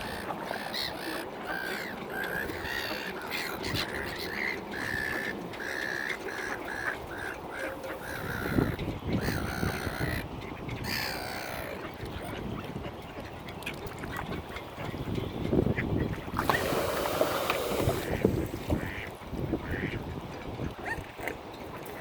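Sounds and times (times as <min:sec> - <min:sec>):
waterbirds calling: 0:00.0 - 0:22.0.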